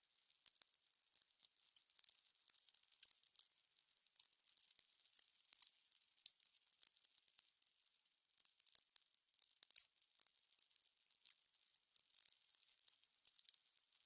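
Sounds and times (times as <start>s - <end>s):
soft steady hiss: 0.0s - 14.0s
fire crackling: 12.2s - 14.0s.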